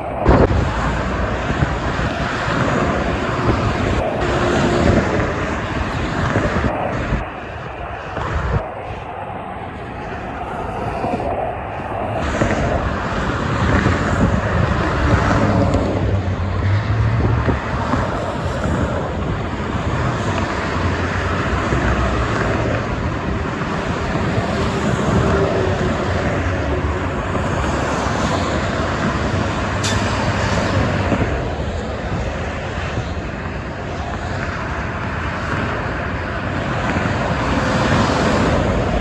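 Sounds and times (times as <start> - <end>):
traffic tyre and engine noise: 0.0 - 39.0
low engine rumble of passing trucks: 12.7 - 39.0.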